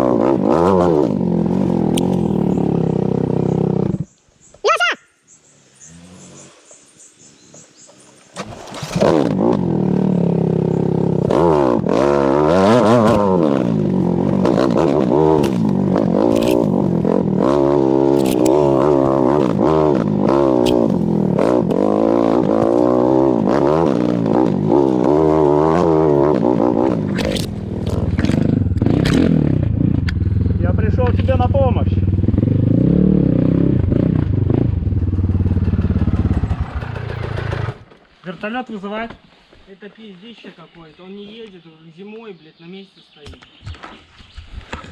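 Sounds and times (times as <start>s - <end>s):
dirt bike engine revving hard: 0.0s - 4.1s, 5.7s - 6.9s, 8.4s - 37.9s.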